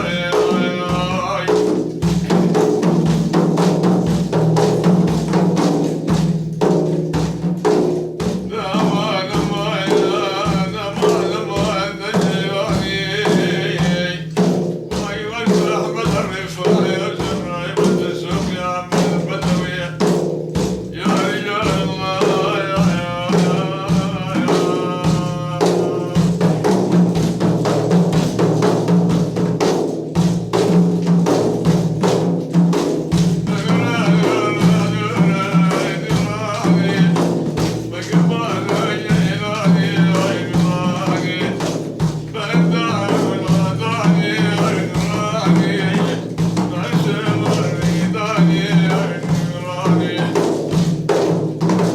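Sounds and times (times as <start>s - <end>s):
man singing devotional line: 0.0s - 3.2s, 8.2s - 29.2s, 32.8s - 51.9s
frame drum beats: 0.0s - 51.9s.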